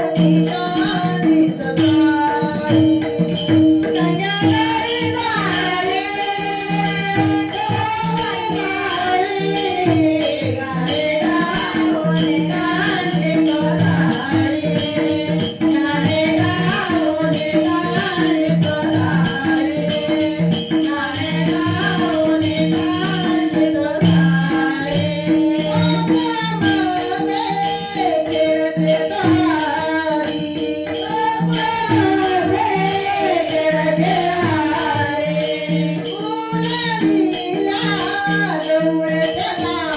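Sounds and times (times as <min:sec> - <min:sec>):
jingling hand percussion: 0:00.0 - 0:39.9.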